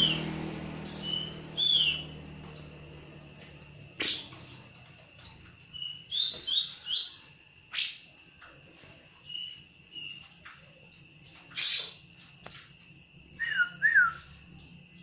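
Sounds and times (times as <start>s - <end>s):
bird whistled calls: 0.9s - 2.2s, 5.7s - 8.0s, 13.4s - 14.3s.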